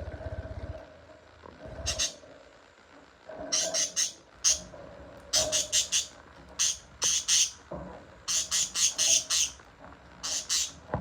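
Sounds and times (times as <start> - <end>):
lovebirds squawking: 1.9 - 2.2, 3.6 - 4.7, 5.4 - 7.6, 8.3 - 9.6, 10.2 - 10.8.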